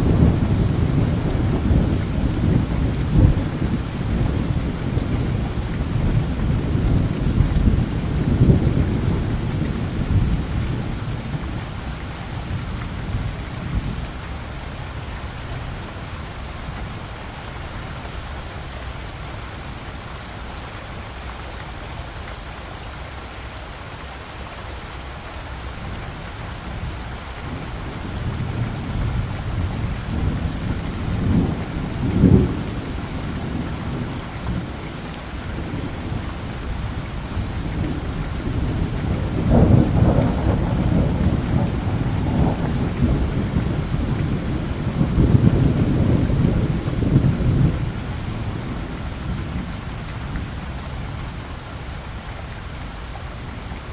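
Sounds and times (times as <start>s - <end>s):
low rolling thunder: 0.0s - 15.0s, 26.7s - 51.3s
steady rain: 0.0s - 53.9s.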